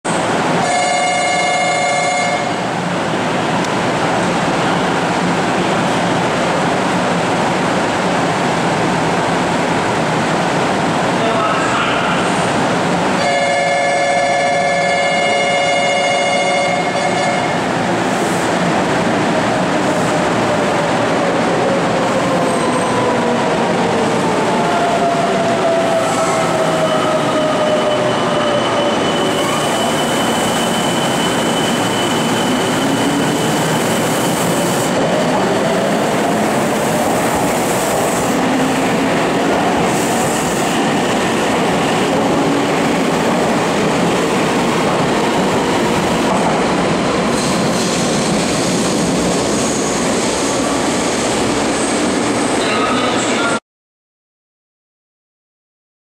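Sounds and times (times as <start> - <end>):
train wheels rumbling on rail: 0.1 - 53.6
high wheel squeal: 26.0 - 34.8.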